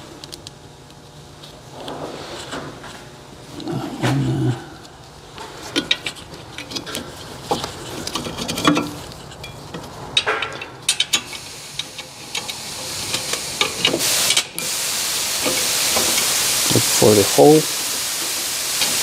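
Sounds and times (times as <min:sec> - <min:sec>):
metallic clicks of bolts and tools: 0:05.8 - 0:14.5
hiss: 0:11.3 - 0:19.0.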